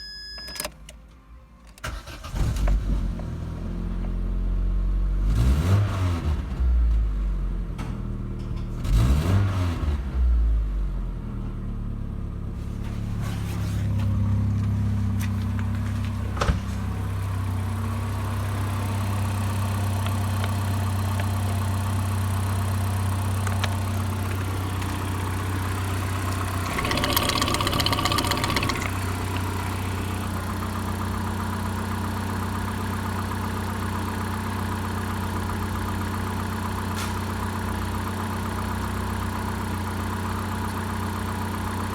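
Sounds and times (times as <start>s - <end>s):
car engine starting and revving: 1.8s - 7.8s, 8.7s - 12.5s, 13.9s - 35.0s
car engine idling: 14.0s - 41.9s.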